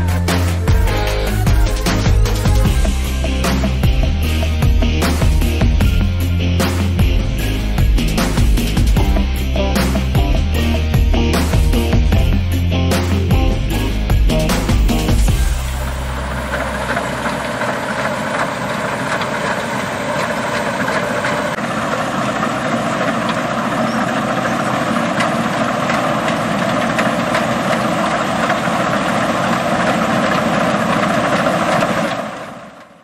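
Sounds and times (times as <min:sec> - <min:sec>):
harvester engine running: 0:00.0 - 0:33.0.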